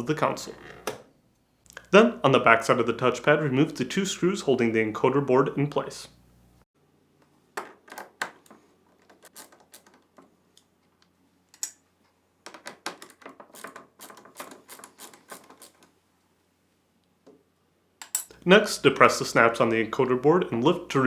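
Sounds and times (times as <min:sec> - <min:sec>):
tool and plastic parts clicking: 0:07.6 - 0:11.8.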